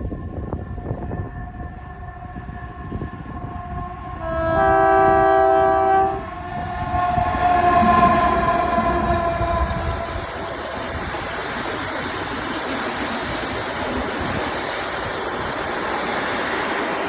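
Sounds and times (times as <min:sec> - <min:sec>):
locomotive engine and wheels: 0:00.0 - 0:17.0
two-tone locomotive horn: 0:00.8 - 0:10.9.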